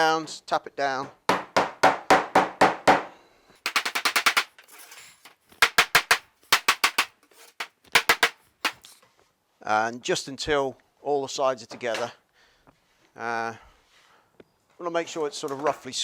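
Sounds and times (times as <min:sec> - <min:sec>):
rubber mallet tapping wood: 0:03.7 - 0:04.5, 0:05.6 - 0:07.1, 0:07.9 - 0:08.8.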